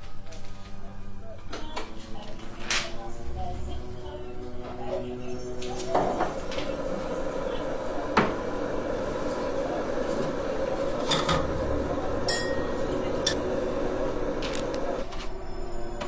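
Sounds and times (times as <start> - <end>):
steady hum: 2.1 - 15.6
crockery and cutlery clinking: 11.0 - 13.5.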